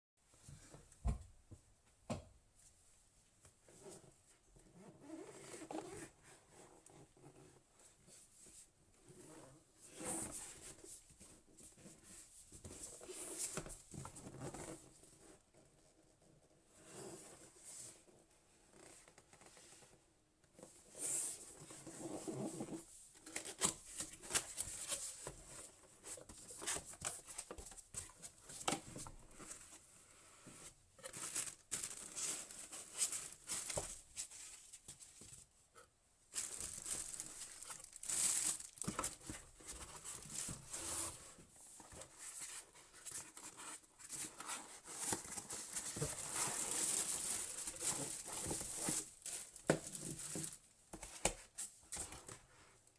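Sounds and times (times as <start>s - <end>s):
packaging crinkling and tearing: 31.2s - 32.3s, 36.4s - 39.2s.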